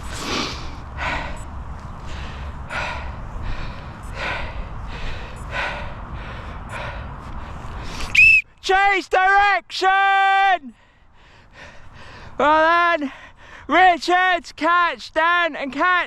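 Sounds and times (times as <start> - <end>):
heavy breathing of runner: 0.0 - 8.2, 10.6 - 13.8.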